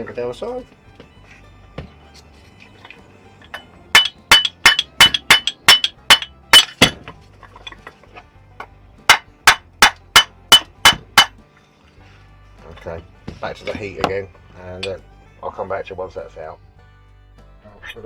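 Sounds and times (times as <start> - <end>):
mallet knocking on metal: 4.0 - 7.2, 9.1 - 11.4.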